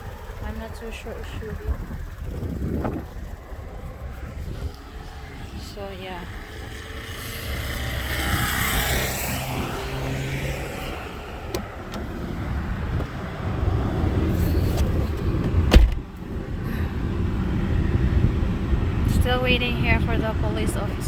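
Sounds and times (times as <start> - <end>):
car passing: 0.0 - 21.0
low traffic rumble: 0.0 - 21.0
sharp knock with low thump: 15.6 - 16.1.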